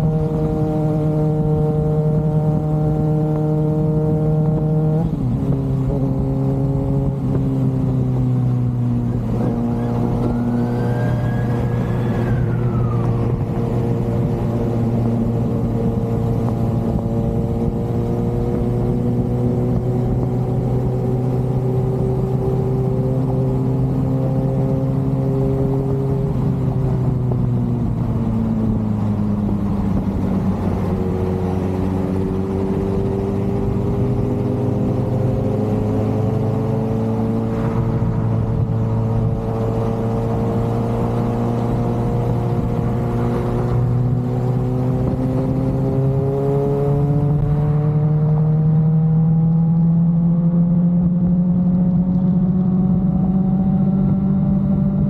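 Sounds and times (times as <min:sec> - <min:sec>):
motorcycle engine running: 0:11.7 - 0:55.0.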